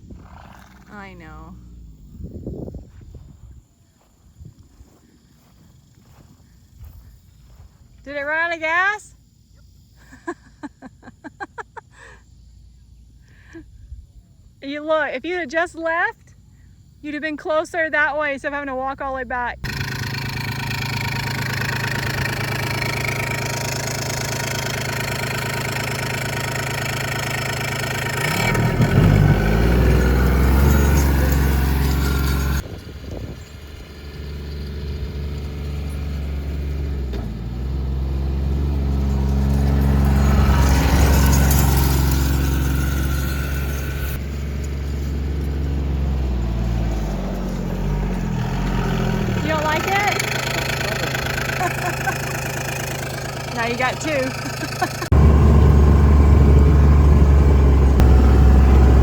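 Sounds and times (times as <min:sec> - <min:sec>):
tractor engine running: 0:17.4 - 0:59.0.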